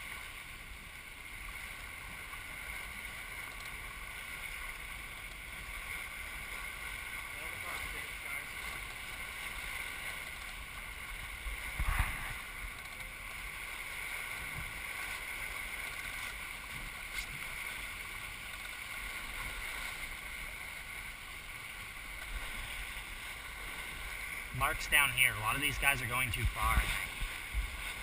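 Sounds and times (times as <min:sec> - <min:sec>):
water rushing along boat hull: 0:00.0 - 0:28.0
wind rumbling on microphone: 0:08.3 - 0:24.8, 0:25.7 - 0:28.0.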